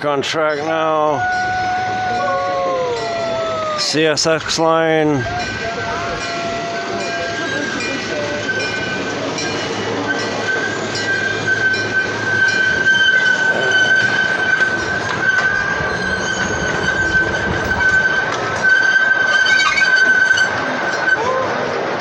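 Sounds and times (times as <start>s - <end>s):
train track rumble: 0.0s - 22.0s
train wheels squealing: 5.2s - 21.6s.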